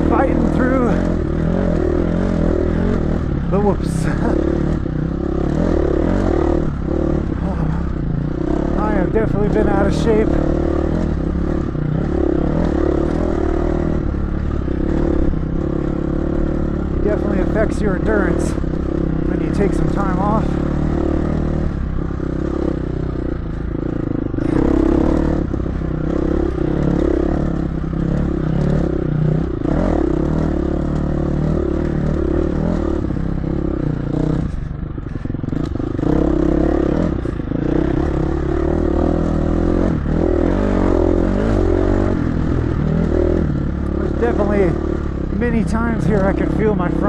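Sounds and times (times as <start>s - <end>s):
dirt bike engine revving: 0.0s - 47.0s.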